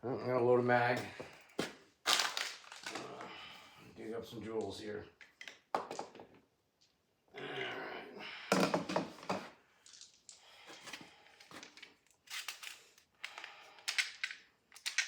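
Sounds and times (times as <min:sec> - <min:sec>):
hands handling small parts: 0:04.5 - 0:07.0, 0:08.7 - 0:15.0.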